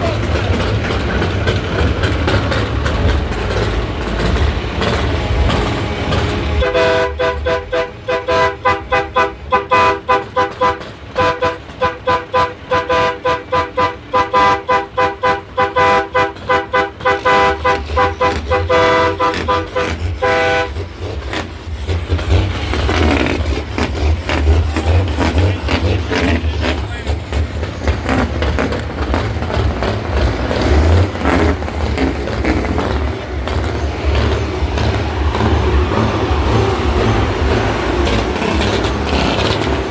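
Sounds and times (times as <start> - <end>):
truck engine droning: 0.0 - 39.9
truck horn short blasts: 6.1 - 21.5.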